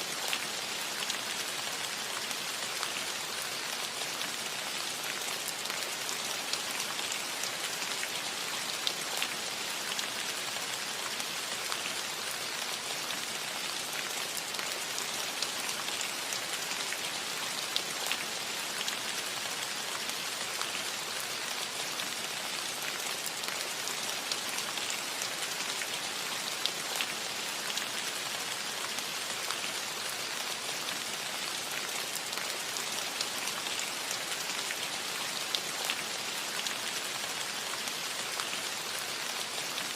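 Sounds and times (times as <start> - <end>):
rain falling on a roof: 0.0 - 39.9.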